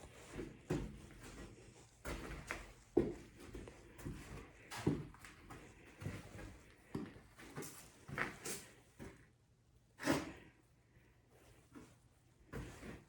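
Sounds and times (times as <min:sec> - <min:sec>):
footsteps and scuffing knocks: 0:00.0 - 0:09.2.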